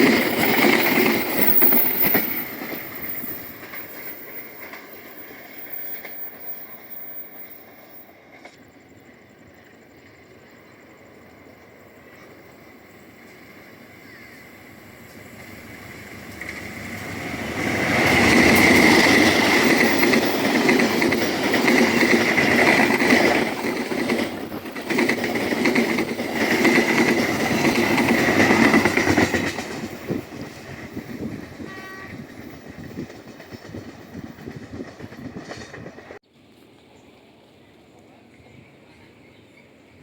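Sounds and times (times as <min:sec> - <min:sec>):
train wheels clattering over rails: 0:00.0 - 0:08.8, 0:14.8 - 0:36.2
train horn blasts: 0:31.5 - 0:32.4.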